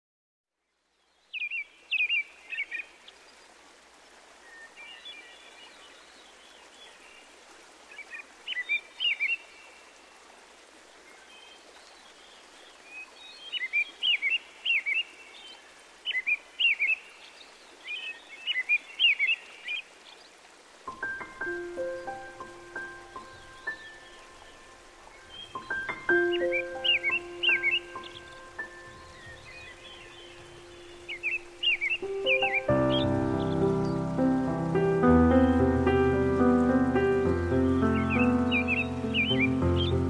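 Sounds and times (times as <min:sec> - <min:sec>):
steady background hiss: 0:00.9 - 0:40.0
small birds chirping: 0:11.0 - 0:40.0.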